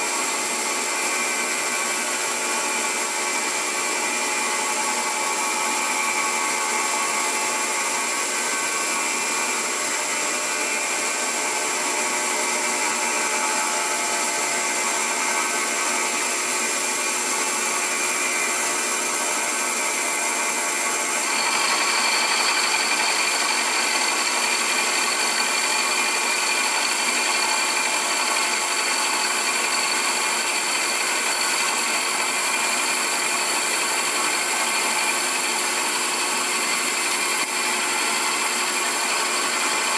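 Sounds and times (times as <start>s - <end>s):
milling machine cutting metal: 0.1s - 39.9s.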